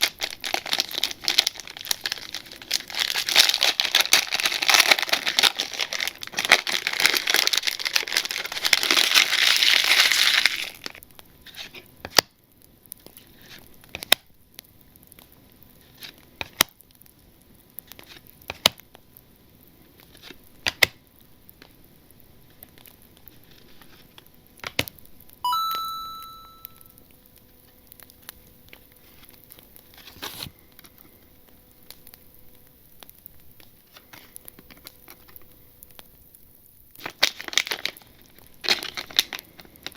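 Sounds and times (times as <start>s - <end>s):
foil wrapper crinkling and tearing: 0.0s - 11.9s, 20.0s - 21.8s, 22.4s - 25.0s, 36.9s - 39.9s
short ringing ping: 25.5s - 26.8s.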